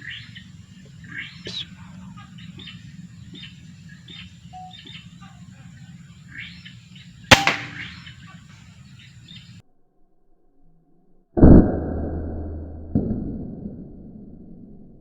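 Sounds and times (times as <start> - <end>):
low background rumble: 0.0 - 9.6
small birds chirping: 0.0 - 9.6
air rifle shot: 7.3 - 8.2.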